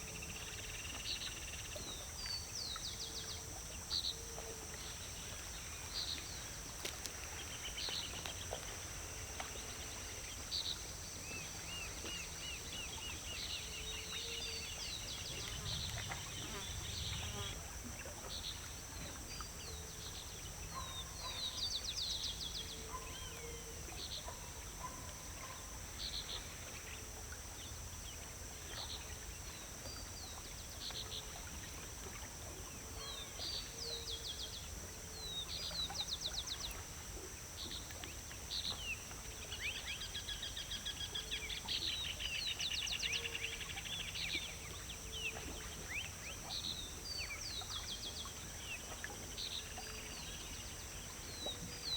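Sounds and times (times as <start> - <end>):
low background noise: 0.0 - 51.9
steady high-pitched hiss: 0.0 - 51.9.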